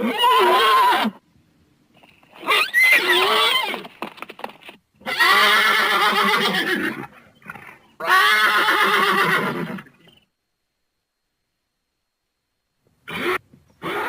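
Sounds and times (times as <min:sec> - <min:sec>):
horse whinnying: 0:00.0 - 0:01.2, 0:02.3 - 0:04.0, 0:05.0 - 0:10.0, 0:13.1 - 0:14.0.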